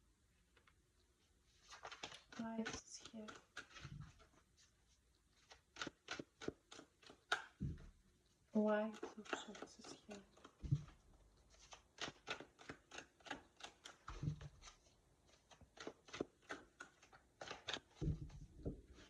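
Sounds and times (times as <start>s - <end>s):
cards clicking and rustling: 1.6s - 4.2s, 5.4s - 7.6s, 11.5s - 19.0s.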